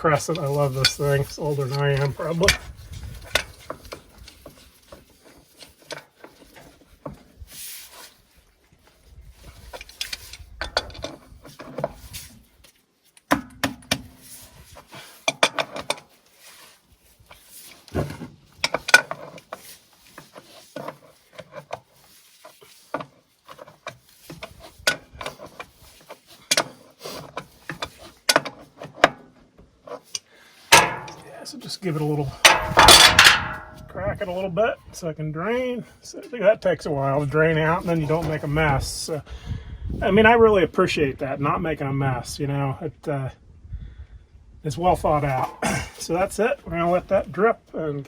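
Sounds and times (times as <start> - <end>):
wrench clinking on metal: 30.7 - 31.3, 32.4 - 33.9.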